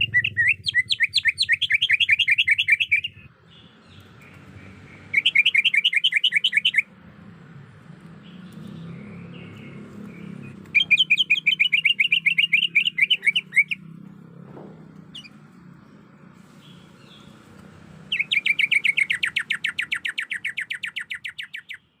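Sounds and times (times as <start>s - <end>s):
bird rapid repeated calls: 0.0s - 7.3s, 8.1s - 14.3s, 14.9s - 22.0s.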